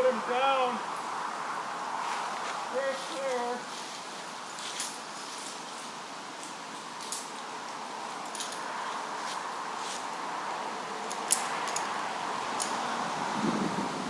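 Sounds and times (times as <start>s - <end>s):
steady hiss: 0.0s - 14.0s
metal climbing hardware clinking: 8.2s - 8.9s, 11.1s - 12.0s, 12.6s - 12.8s.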